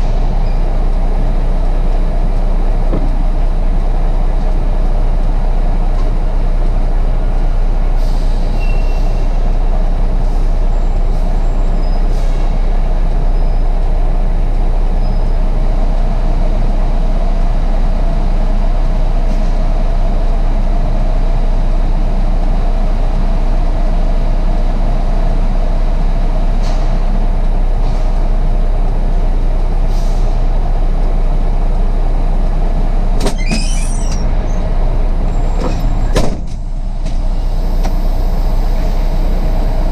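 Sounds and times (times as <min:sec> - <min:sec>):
diesel truck engine running: 0:00.0 - 0:39.9
high squeal: 0:08.5 - 0:09.3, 0:33.3 - 0:34.7.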